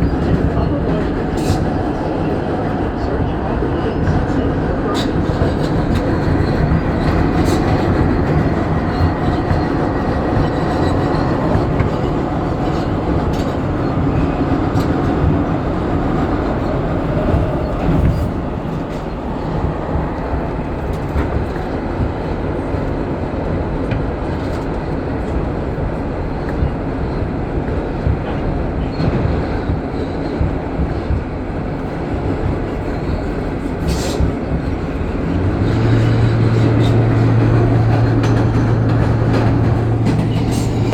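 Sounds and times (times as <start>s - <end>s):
subway wheels rumbling on rails: 0.0s - 40.9s
clicks over rail joints: 35.5s - 40.9s.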